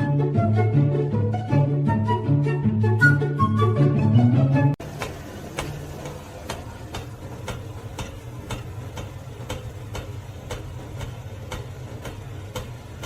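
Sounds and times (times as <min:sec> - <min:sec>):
regular sharp ticking: 0:04.8 - 0:13.0.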